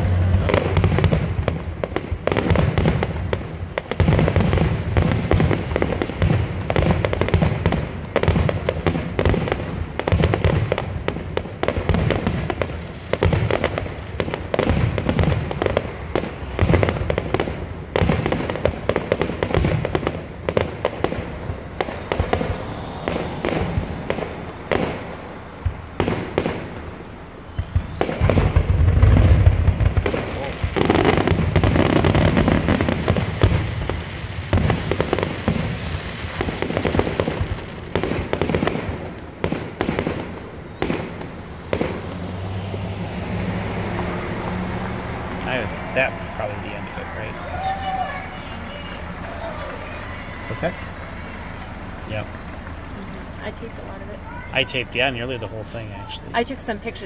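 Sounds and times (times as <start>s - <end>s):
fireworks booms and crackling: 0.0s - 57.0s
faint rising whistle: 22.4s - 24.0s, 27.5s - 30.0s.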